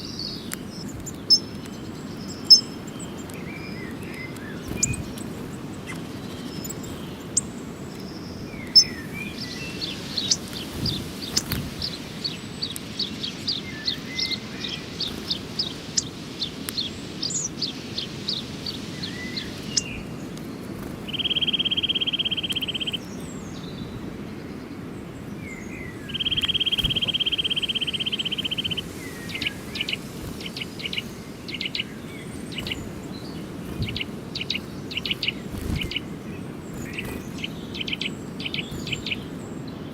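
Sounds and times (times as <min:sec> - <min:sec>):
bird buzzes: 0:00.0 - 0:12.4, 0:25.9 - 0:39.9
small birds chirping: 0:00.0 - 0:39.9.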